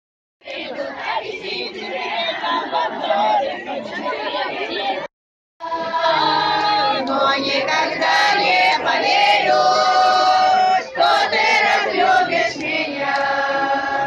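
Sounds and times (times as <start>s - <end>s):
choir singing: 0.4s - 5.0s, 5.6s - 14.0s.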